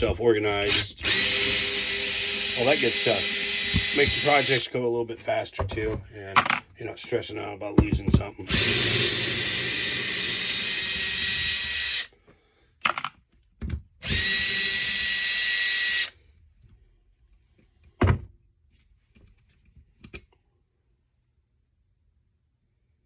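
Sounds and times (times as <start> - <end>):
power drill spinning: 0.0 - 4.7, 8.4 - 12.1, 14.0 - 16.2.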